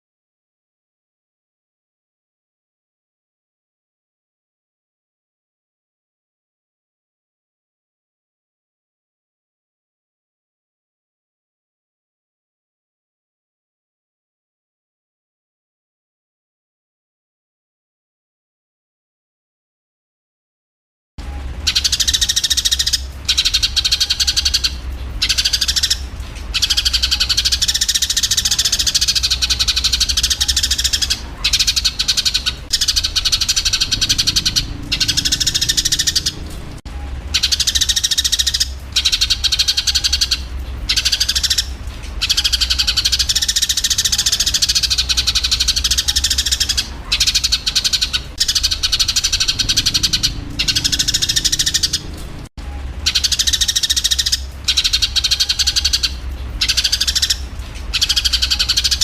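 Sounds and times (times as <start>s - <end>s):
steady low hum: 21.2s - 59.0s
sparrows chattering: 21.4s - 52.4s, 53.0s - 59.0s.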